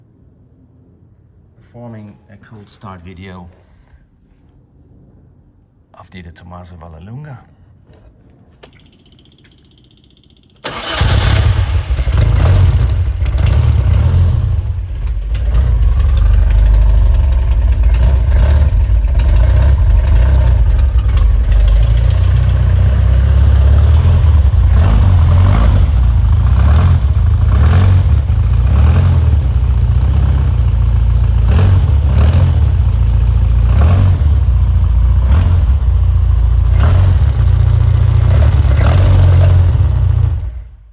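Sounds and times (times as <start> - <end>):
car engine cold-starting: 10.5 - 40.9.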